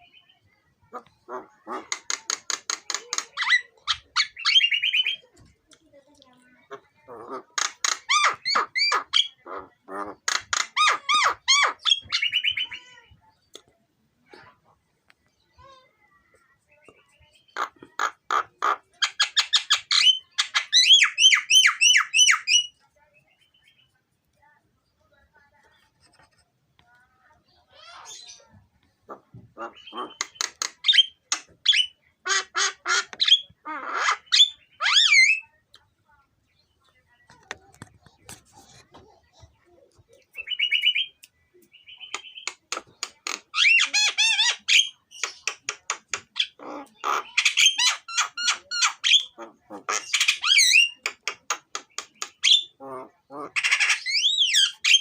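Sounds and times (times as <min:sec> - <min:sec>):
bird squeaky calls: 0:01.7 - 0:05.2, 0:07.3 - 0:13.0, 0:18.3 - 0:22.8, 0:29.6 - 0:35.5, 0:41.8 - 0:45.7, 0:46.3 - 0:52.8, 0:53.6 - 0:55.0.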